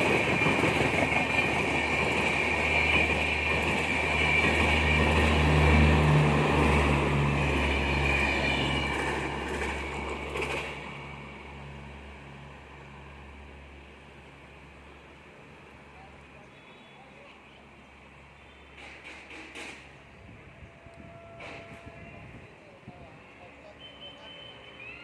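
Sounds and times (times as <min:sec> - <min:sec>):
train rumbling on rails: 0:00.0 - 0:16.6, 0:17.2 - 0:25.0.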